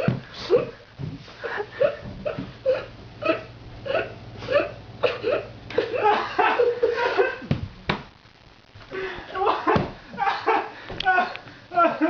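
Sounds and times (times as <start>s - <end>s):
man laughing and hiccuping: 1.8s - 7.5s, 9.4s - 12.0s.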